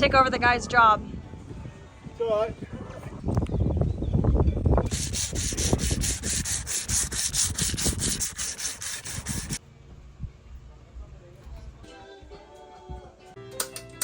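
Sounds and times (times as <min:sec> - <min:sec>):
hand tool scraping: 0:04.9 - 0:09.6.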